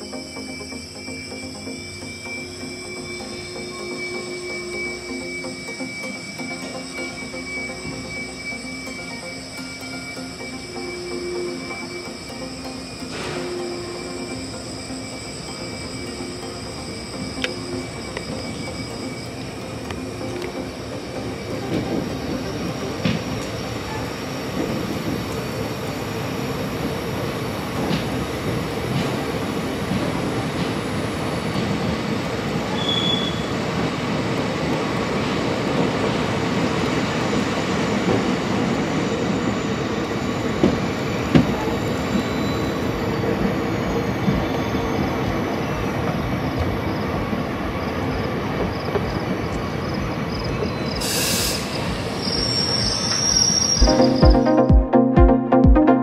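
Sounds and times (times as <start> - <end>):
train wheels rumbling on rails: 17.2 - 53.9
short hiss: 51.0 - 51.9.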